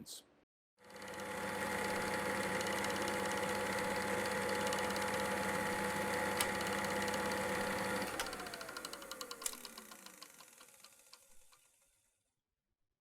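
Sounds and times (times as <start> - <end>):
small motor humming and whining: 0.8 - 11.8.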